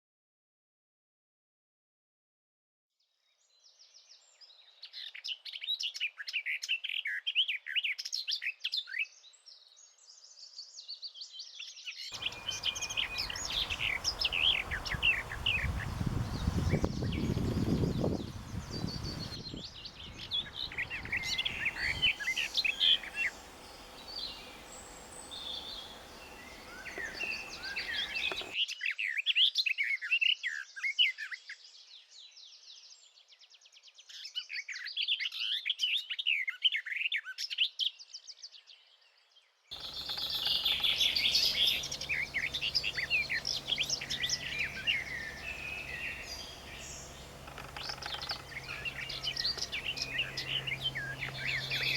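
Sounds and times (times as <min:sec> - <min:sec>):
background rumble: 0:12.2 - 0:28.6, 0:39.8 - 0:51.9
songbirds chirping and trilling: 0:12.2 - 0:28.6, 0:39.7 - 0:51.9.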